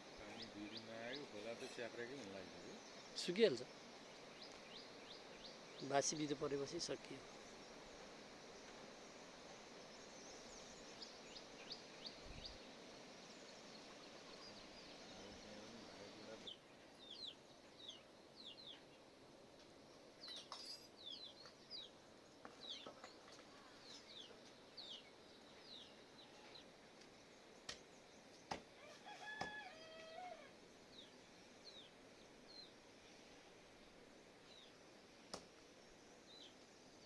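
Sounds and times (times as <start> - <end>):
small birds chirping: 0.0 - 37.0
distant rooster crowing: 28.7 - 30.6.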